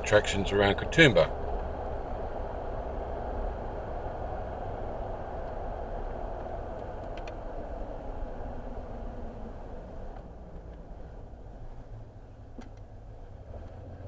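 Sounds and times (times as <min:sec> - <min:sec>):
car road noise: 0:00.0 - 0:14.0
faint clicks: 0:06.4 - 0:07.4.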